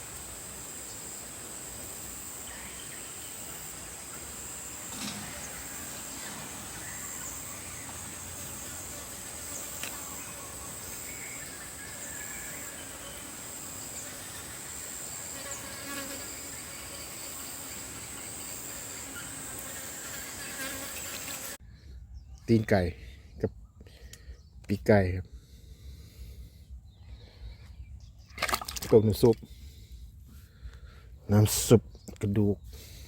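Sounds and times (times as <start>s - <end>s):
insect chorus trilling: 0.0s - 21.6s.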